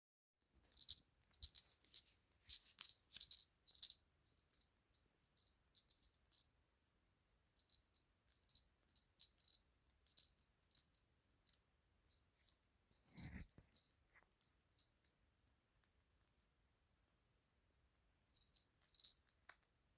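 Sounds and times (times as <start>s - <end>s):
small bell jingling: 0.6s - 6.5s, 7.6s - 12.2s, 18.3s - 19.3s.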